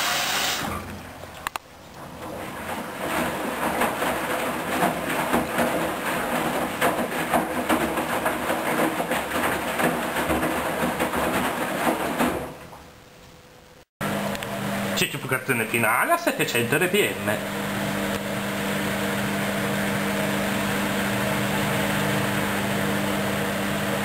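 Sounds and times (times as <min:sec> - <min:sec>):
washing machine sloshing water: 0:00.0 - 0:12.8.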